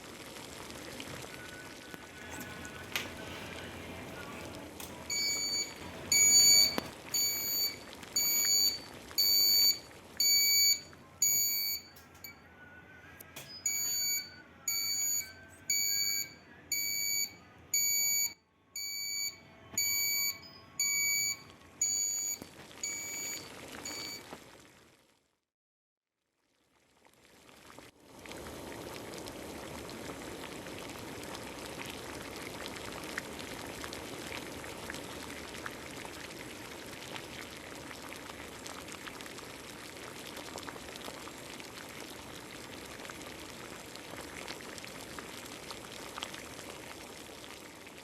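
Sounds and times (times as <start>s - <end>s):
alarm buzzer beeping: 5.1s - 11.9s, 13.5s - 24.2s.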